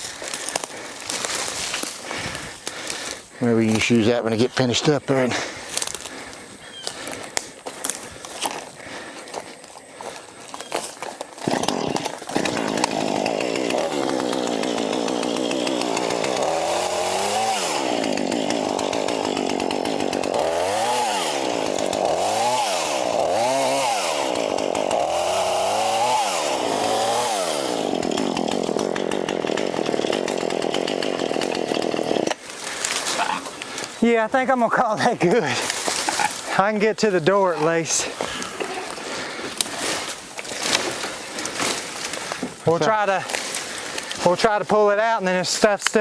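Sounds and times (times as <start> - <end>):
chainsaw revving: 10.8 - 34.0.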